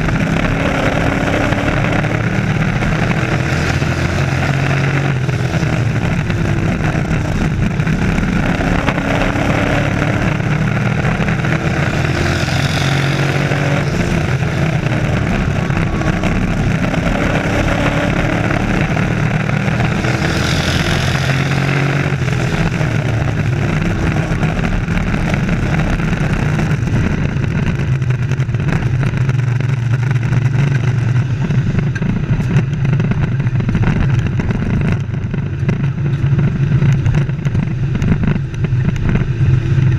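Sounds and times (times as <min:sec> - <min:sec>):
race truck engines droning: 0:00.0 - 0:39.9.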